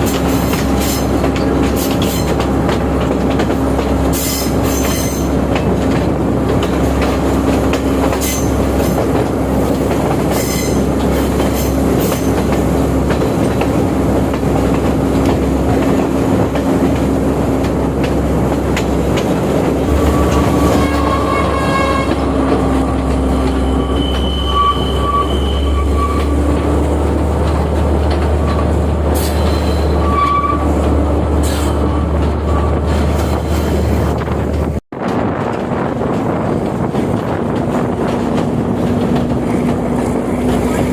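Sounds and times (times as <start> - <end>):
train engine and rail rumble: 0.0 - 40.9
high-pitched wheel squeals: 19.9 - 26.6, 29.2 - 30.8.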